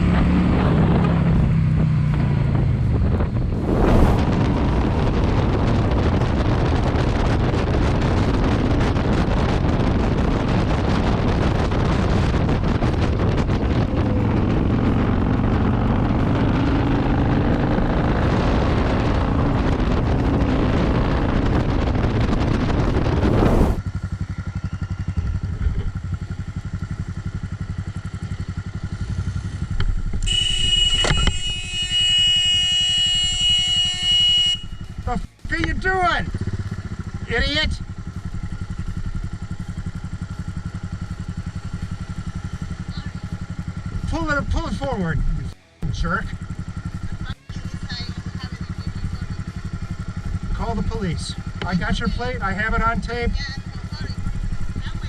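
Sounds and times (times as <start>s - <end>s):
wind rush on microphone: 0.0s - 23.9s
motorcycle engine: 0.0s - 55.0s.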